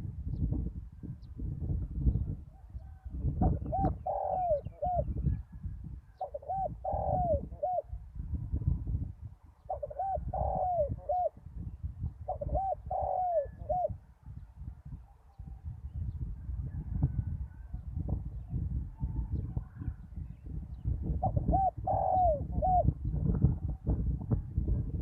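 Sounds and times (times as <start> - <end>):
dove cooing: 2.8 - 5.4, 6.2 - 7.9, 9.7 - 11.4, 12.3 - 14.0, 21.2 - 23.0.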